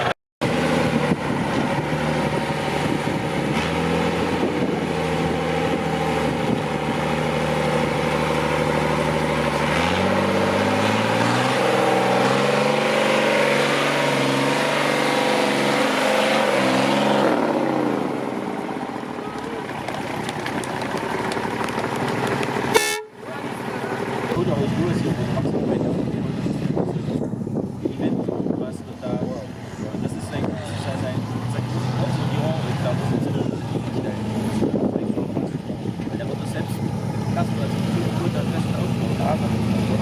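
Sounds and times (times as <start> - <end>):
diesel truck engine revving: 0.0 - 40.0.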